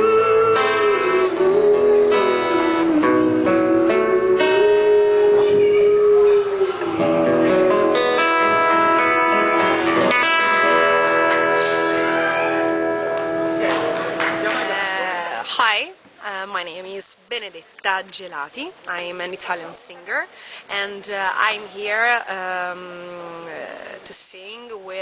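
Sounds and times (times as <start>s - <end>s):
guitar accompaniment: 0.0s - 21.7s.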